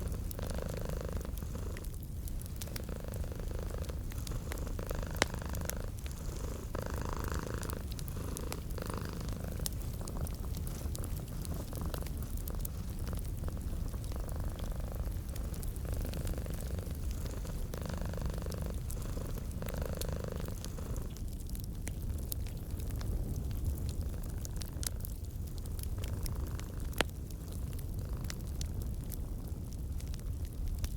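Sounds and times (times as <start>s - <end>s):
cat purring: 0.0s - 21.6s, 25.7s - 28.7s
wood fire crackling: 0.0s - 30.9s.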